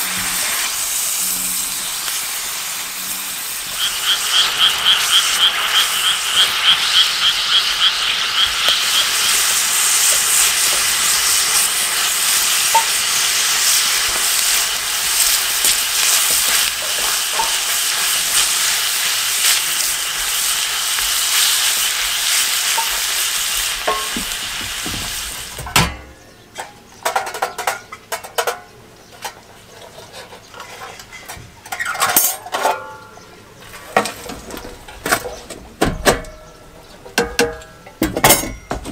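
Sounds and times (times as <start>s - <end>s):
food sizzling in a pan: 0.0s - 25.7s
rapid chirping pulses: 3.5s - 10.4s.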